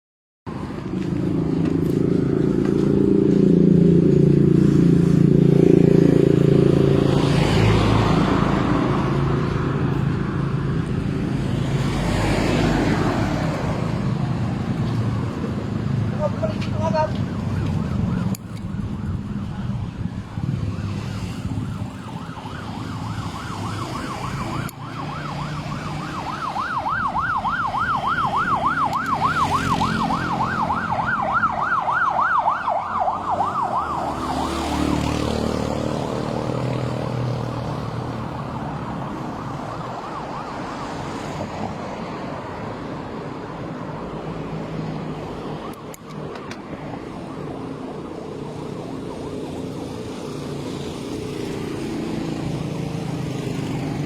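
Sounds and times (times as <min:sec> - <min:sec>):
road traffic: 0:00.5 - 0:54.0
emergency siren yelping: 0:15.8 - 0:54.0.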